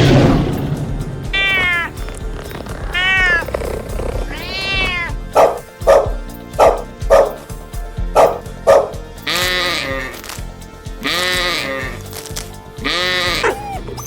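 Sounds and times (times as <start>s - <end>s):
background music: 0.0s - 14.0s
bleating call: 1.4s - 5.6s, 9.2s - 10.4s, 11.0s - 14.0s
cat meowing: 1.4s - 6.1s, 12.8s - 14.0s
dog barking: 5.4s - 7.4s, 8.2s - 9.0s, 13.0s - 14.0s.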